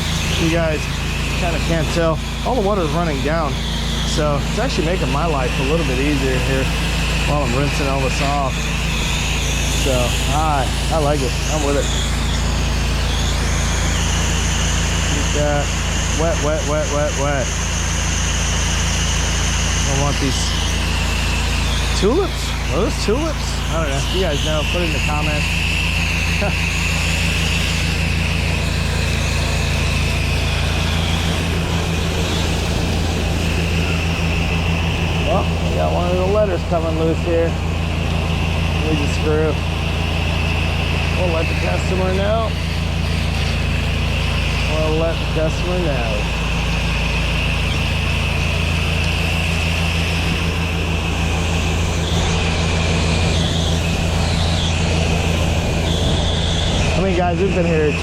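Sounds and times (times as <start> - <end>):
pressure washer engine running: 0.0 - 58.0
water spray hissing: 17.7 - 45.4.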